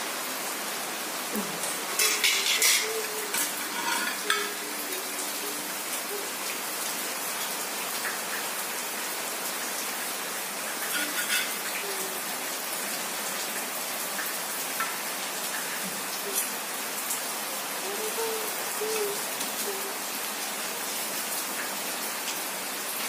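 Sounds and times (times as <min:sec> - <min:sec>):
rain hissing: 0:00.0 - 0:23.0.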